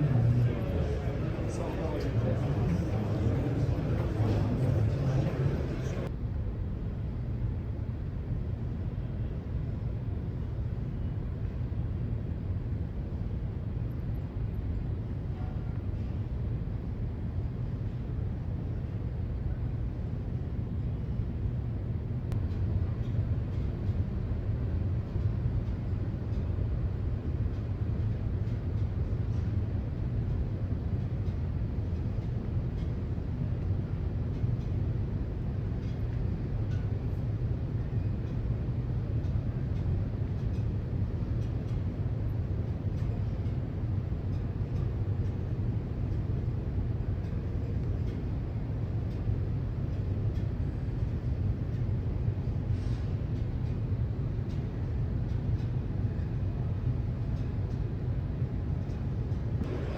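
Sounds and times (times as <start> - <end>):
dump truck engine rumbling: 0.0 - 6.1.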